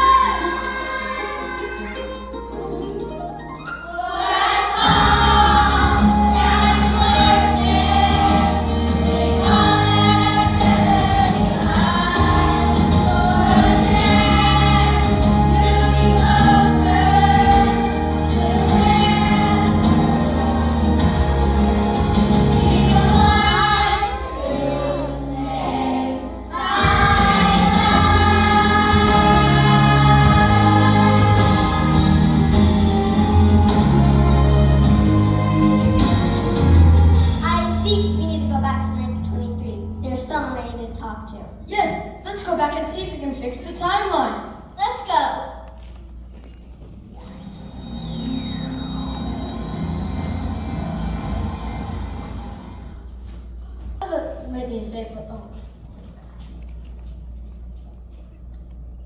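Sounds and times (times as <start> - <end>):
choir singing: 0.0 - 2.1, 3.9 - 37.5, 47.3 - 53.1
instrumental accompaniment: 0.0 - 40.9.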